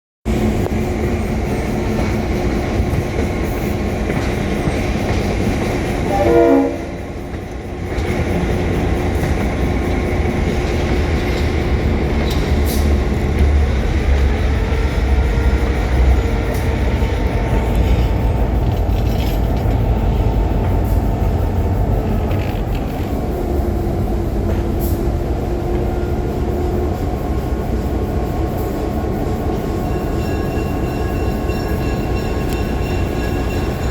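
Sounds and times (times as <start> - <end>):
train rumbling on rails: 0.2 - 33.9
train horn blast: 6.0 - 7.0.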